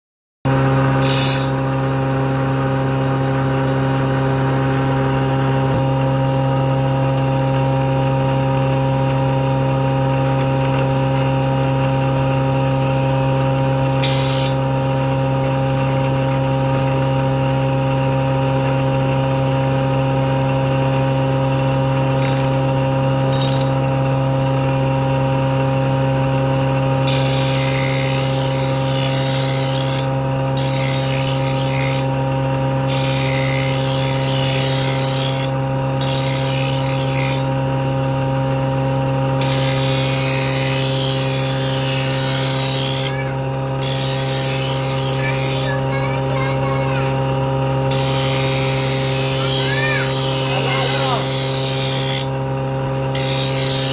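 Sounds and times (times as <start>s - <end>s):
electric motor humming: 0.5s - 53.9s
hissing of blade grinding: 0.9s - 2.4s, 14.0s - 15.2s, 21.4s - 23.9s, 27.0s - 32.2s, 32.8s - 37.6s, 39.4s - 53.9s.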